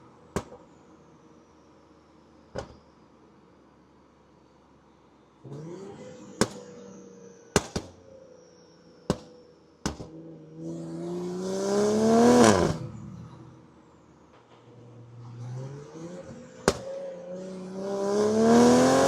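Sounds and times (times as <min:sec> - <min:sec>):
car engine revving: 0:05.4 - 0:07.2, 0:10.0 - 0:13.7, 0:14.6 - 0:19.0.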